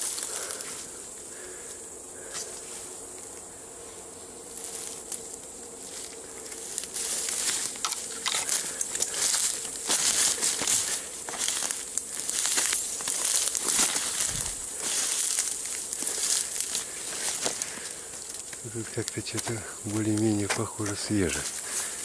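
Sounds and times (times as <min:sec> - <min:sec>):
rustling through dry leaves: 0:00.0 - 0:22.0.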